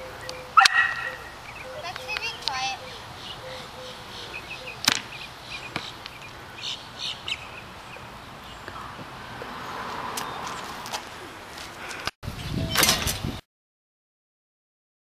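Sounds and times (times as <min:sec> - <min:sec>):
small birds chirping: 0:00.0 - 0:10.8.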